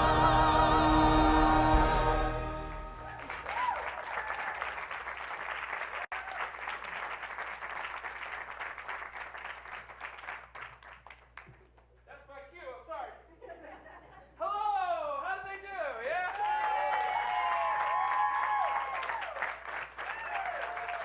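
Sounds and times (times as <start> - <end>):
choir singing with accompaniment: 0.0 - 3.4
audience applauding: 0.0 - 11.6, 16.1 - 21.0.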